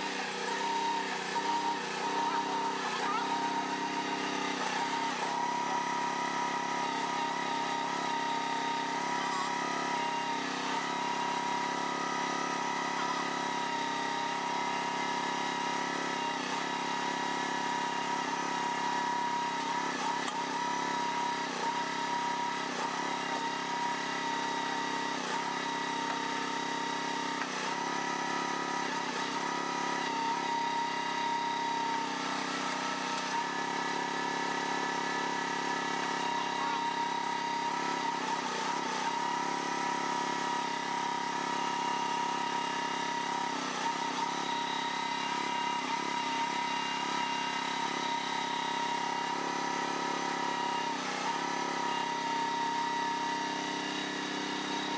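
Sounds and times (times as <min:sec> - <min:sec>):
engine running with high whine: 0:00.0 - 0:13.4.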